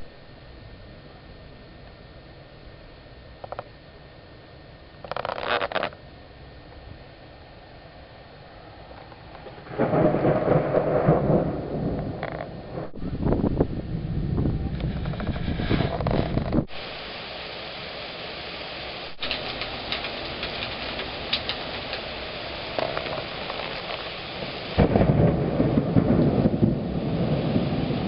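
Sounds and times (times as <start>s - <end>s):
rain pattering: 5.0s - 6.0s, 8.8s - 13.0s, 14.5s - 28.0s
thunder rumbling: 8.5s - 16.8s, 19.1s - 28.0s.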